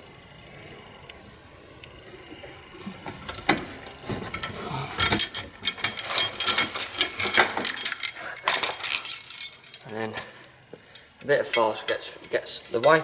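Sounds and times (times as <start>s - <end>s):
metallic clicking and rattling: 3.2s - 13.0s.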